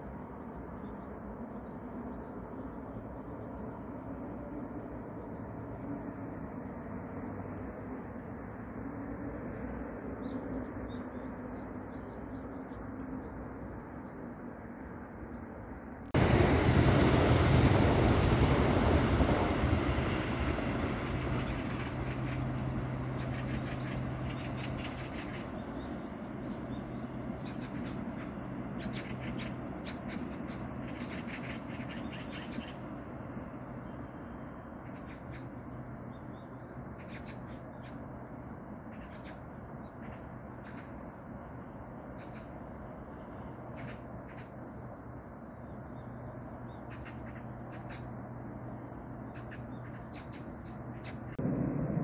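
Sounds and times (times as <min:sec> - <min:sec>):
electric train rumbling: 0:00.0 - 0:52.0
birds chirping: 0:16.9 - 0:33.2, 0:45.5 - 0:48.1, 0:49.2 - 0:51.4.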